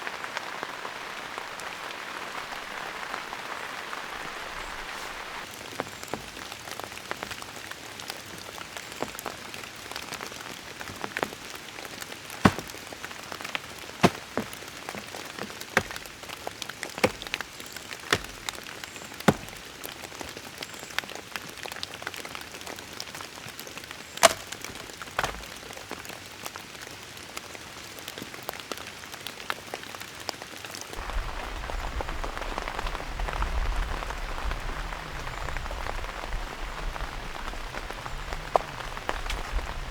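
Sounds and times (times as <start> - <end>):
rain hissing: 0.0 - 7.2
large drops tapping a surface: 19.3 - 19.6.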